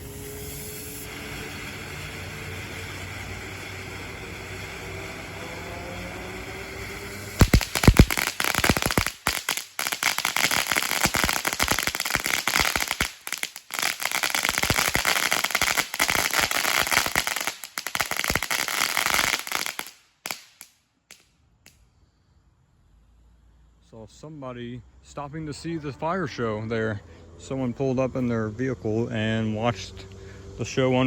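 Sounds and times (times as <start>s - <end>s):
firework rapid crackling: 0.0s - 5.4s, 6.4s - 21.8s
firework hissing: 0.0s - 21.8s
firework bangs: 6.8s - 21.2s.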